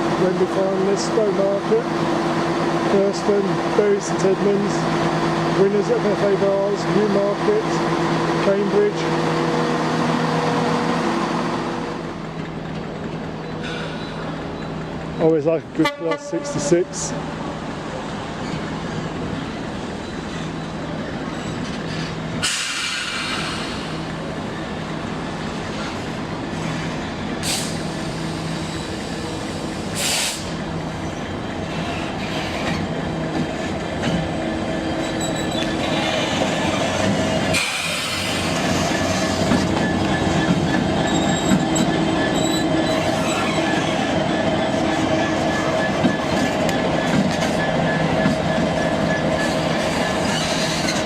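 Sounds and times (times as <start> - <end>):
diesel locomotive engine drone: 0.0 - 51.0
train wheels squealing on rails: 13.2 - 15.4, 17.9 - 51.0.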